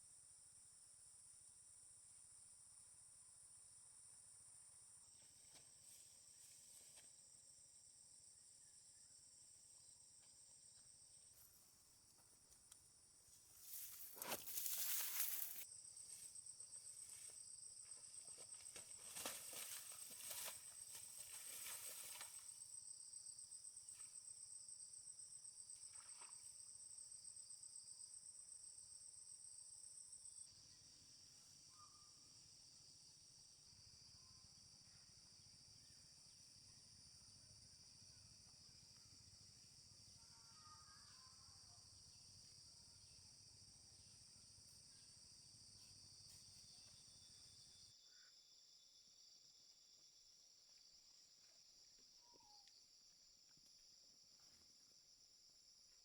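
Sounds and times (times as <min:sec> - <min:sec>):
insects chirping: 0:00.0 - 0:56.0
footsteps through vegetation: 0:13.4 - 0:15.6, 0:18.2 - 0:22.5.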